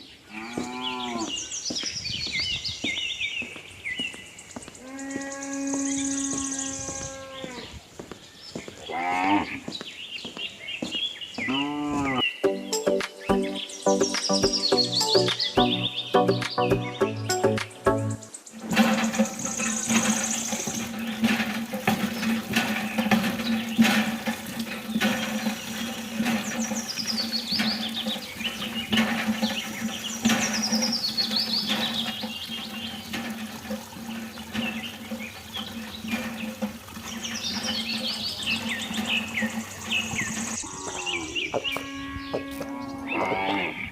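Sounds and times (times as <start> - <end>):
water running and splashing: 0.0 - 11.4, 18.4 - 41.8.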